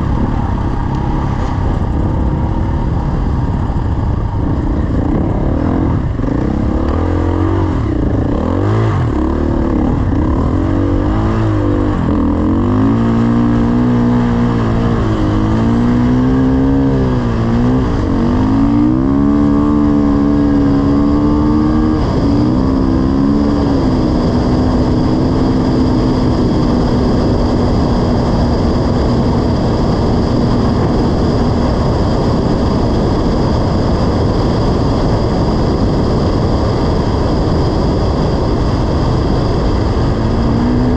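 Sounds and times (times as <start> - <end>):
wind noise rushing: 0.0 - 40.9
dirt bike engine revving: 4.6 - 32.7.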